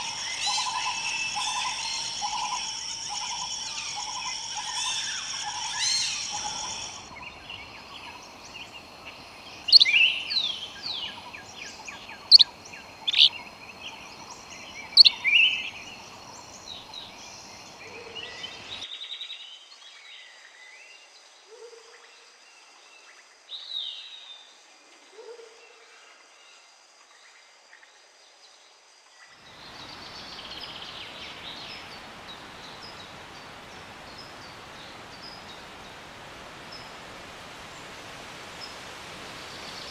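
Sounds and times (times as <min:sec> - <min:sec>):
wild birds whistling and chirping: 0:00.0 - 0:18.9, 0:29.4 - 0:37.9
forest background hiss: 0:00.0 - 0:39.9.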